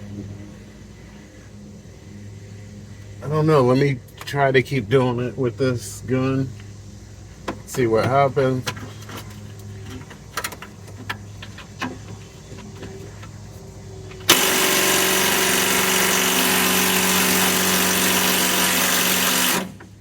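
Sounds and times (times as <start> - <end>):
low steady hum: 0.0 - 20.0
impact wrench hammering: 14.3 - 19.9.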